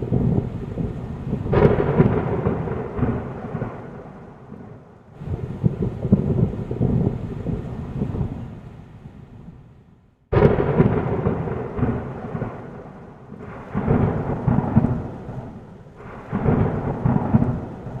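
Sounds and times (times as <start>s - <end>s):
thunder crack and rumbles: 0.0s - 9.7s, 10.3s - 18.0s
rain rushing: 0.0s - 18.0s.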